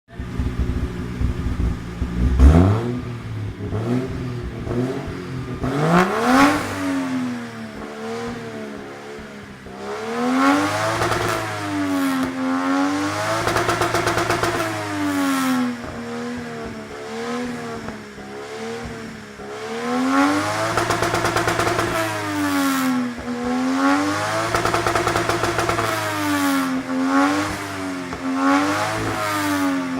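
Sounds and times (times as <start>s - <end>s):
rev limiter stutter: 0.1s - 7.0s, 9.9s - 12.4s, 13.2s - 14.9s, 20.1s - 22.8s, 23.9s - 27.7s
car engine revving: 0.1s - 29.9s.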